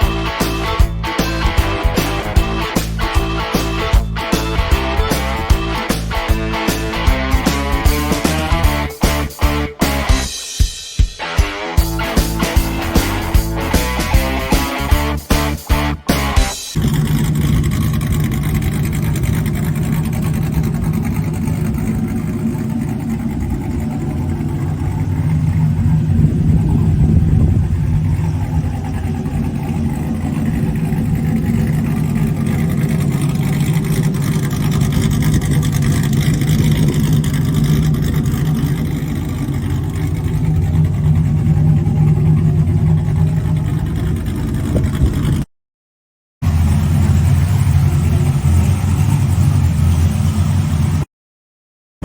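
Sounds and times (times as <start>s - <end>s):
pickup truck engine running: 0.0s - 45.4s, 46.4s - 51.0s.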